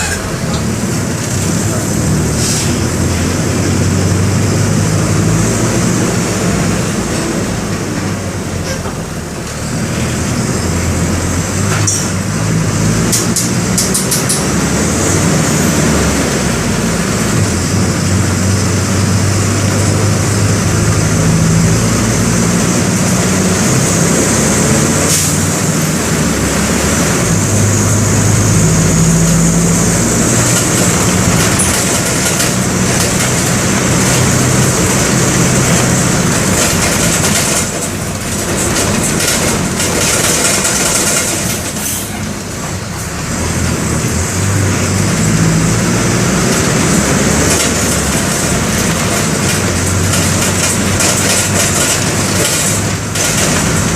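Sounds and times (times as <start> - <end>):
bus diesel engine running: 0.0 - 53.9
road noise: 0.0 - 53.9.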